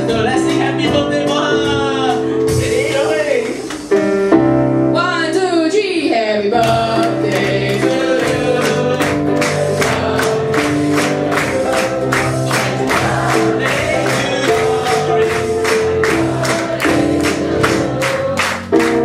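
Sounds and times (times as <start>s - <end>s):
live band music: 0.0s - 19.0s
voices singing: 6.2s - 19.0s
percussion hits: 6.7s - 19.0s.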